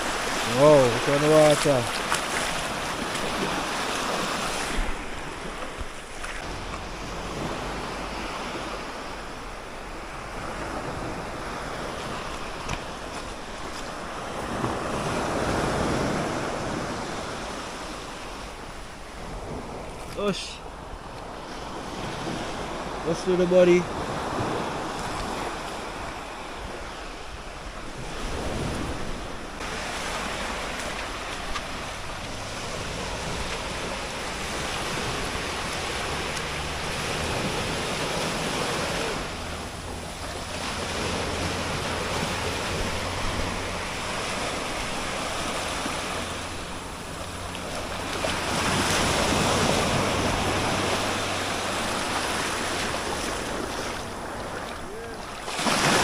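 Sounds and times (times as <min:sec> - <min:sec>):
sea waves washing: 0:00.0 - 0:56.0.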